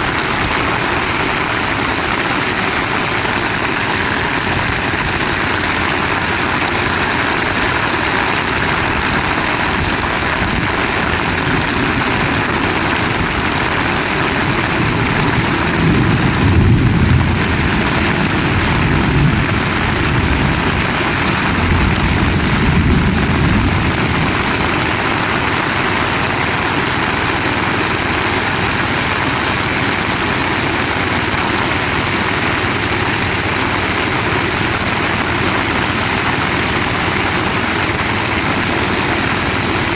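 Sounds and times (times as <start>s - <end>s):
heavy rain falling: 0.0s - 39.9s
low rumble: 0.4s - 25.1s.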